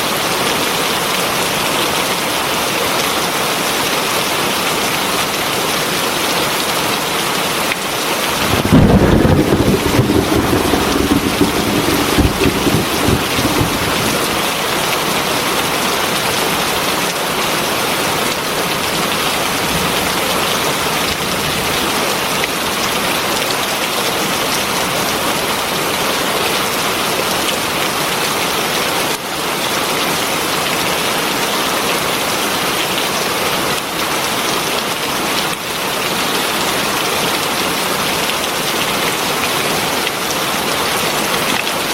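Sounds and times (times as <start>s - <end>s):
heavy rain: 0.0s - 41.9s
thunder rumbling: 8.3s - 15.2s.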